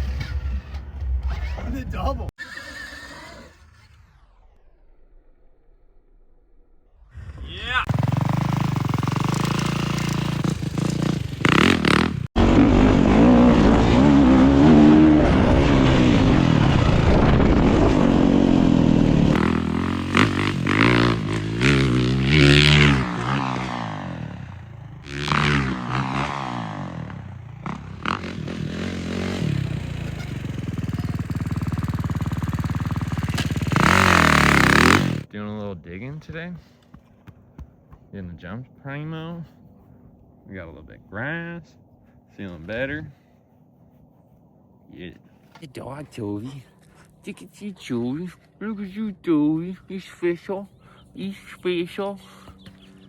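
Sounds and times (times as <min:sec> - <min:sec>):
dirt bike engines revving: 0:07.2 - 0:35.3.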